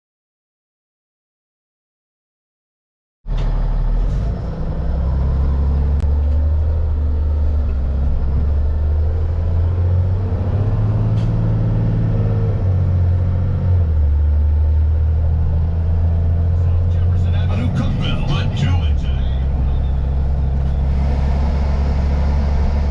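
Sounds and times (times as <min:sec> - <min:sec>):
diesel truck engine idling: 0:12.9 - 0:22.9.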